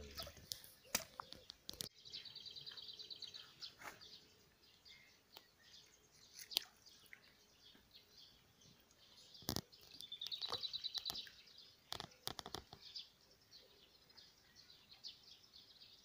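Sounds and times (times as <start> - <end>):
songbird trilling: 9.1 - 13.2.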